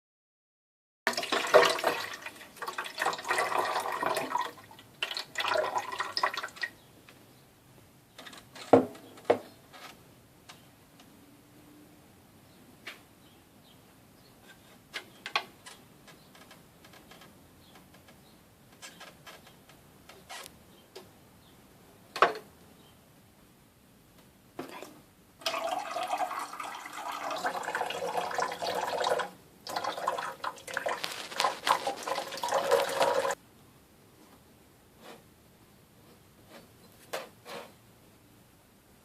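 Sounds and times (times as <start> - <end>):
coffee machine water gurgling: 1.1 - 6.6, 25.4 - 33.4.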